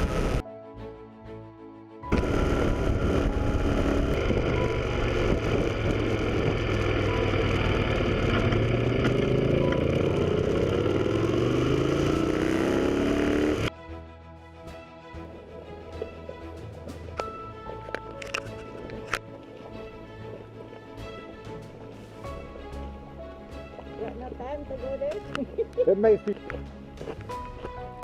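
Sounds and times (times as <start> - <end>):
motorcycle engine running: 0.0 - 0.4, 2.1 - 13.7
rushing road noise: 0.0 - 0.4, 2.1 - 13.7.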